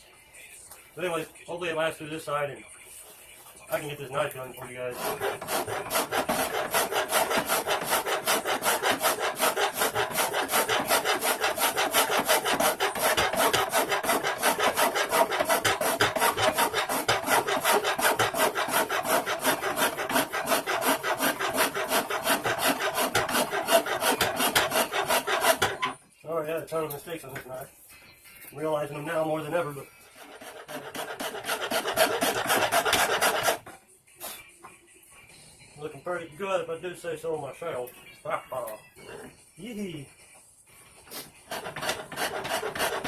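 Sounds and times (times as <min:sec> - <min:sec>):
hand file rasping on knife blade: 0:03.9 - 0:26.0, 0:30.0 - 0:33.8, 0:41.1 - 0:43.0.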